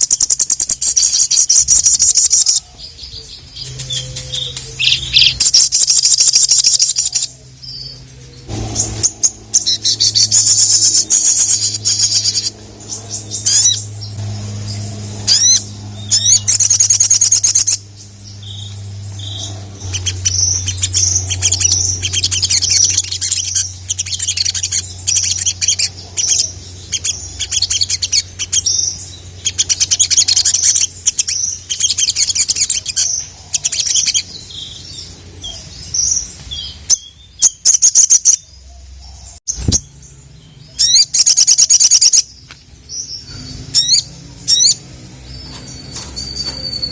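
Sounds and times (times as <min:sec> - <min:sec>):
bird chirping and trilling: 0:00.0 - 0:46.9
low steady hum: 0:00.0 - 0:46.9.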